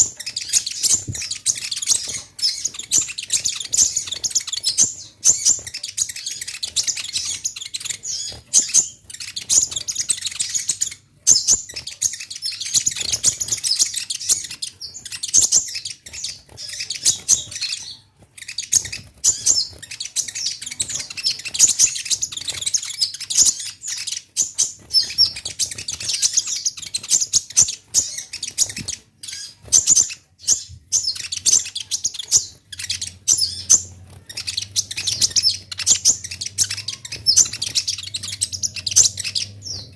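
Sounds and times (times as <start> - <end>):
sunbird rapid high chirps: 0.0 - 39.9.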